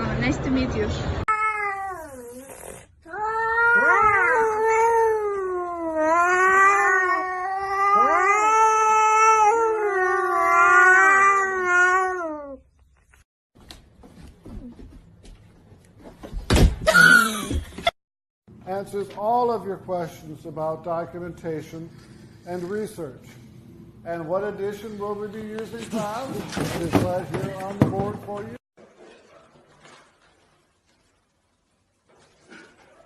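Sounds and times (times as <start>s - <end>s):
cat yowling: 3.1s - 12.6s.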